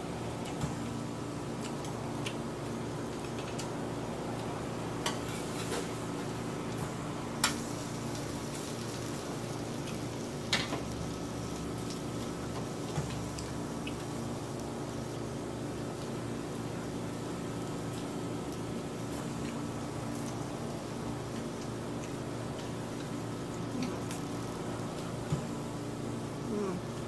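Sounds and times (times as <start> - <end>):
food sizzling on a grill pan: 5.0 - 26.4.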